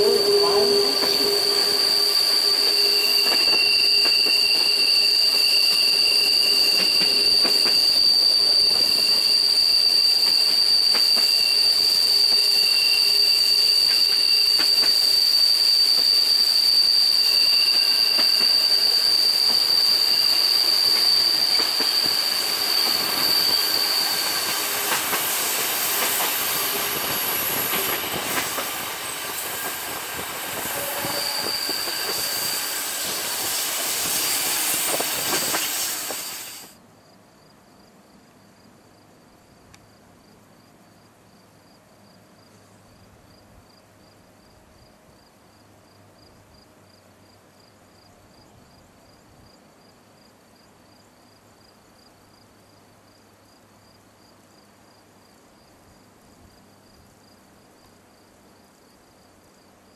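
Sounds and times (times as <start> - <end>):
insect chirping in rapid pulse: 0.0 - 36.7
high wheel squeal: 0.0 - 36.8
train running: 0.0 - 36.8.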